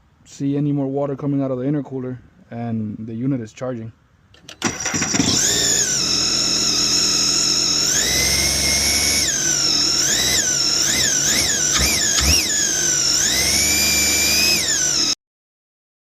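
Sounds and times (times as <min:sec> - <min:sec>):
jet ski engine revving: 0:04.6 - 0:15.2.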